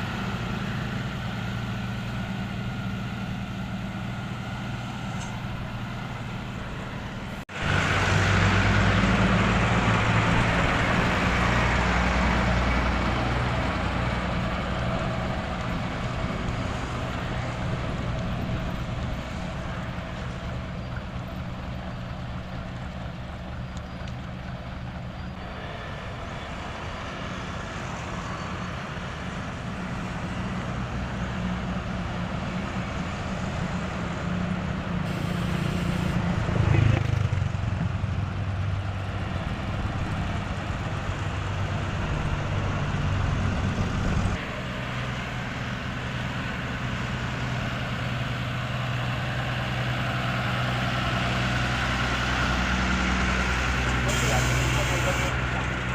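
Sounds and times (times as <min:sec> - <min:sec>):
diesel machinery running: 0:00.0 - 0:55.9
loud machine running: 0:35.1 - 0:37.4, 0:52.9 - 0:55.9.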